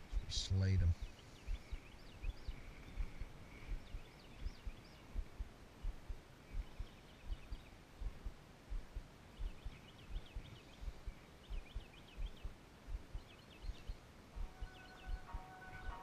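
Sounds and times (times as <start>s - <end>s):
small bird chirping: 0.0s - 16.0s
low thumps: 3.7s - 15.3s
music: 14.4s - 16.0s.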